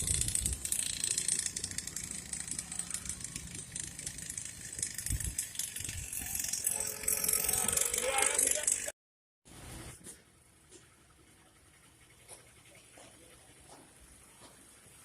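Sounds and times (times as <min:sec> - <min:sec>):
small petrol engine rattling: 0:00.0 - 0:08.9.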